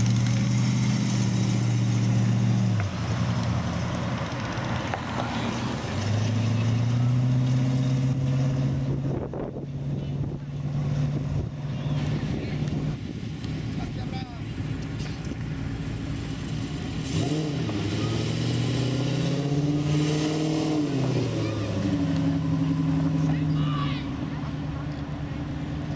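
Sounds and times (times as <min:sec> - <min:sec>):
cars driving slowly past: 0:00.0 - 0:25.9.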